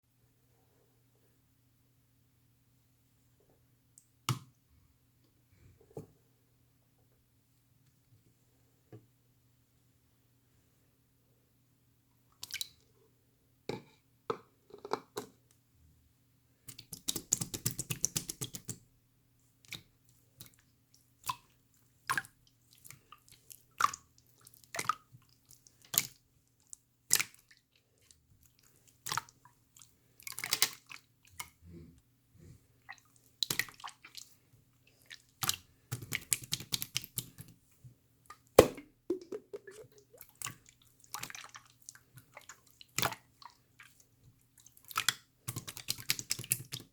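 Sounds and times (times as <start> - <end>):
slime squelching and popping: 35.2 - 37.5, 38.6 - 44.0, 44.6 - 46.9.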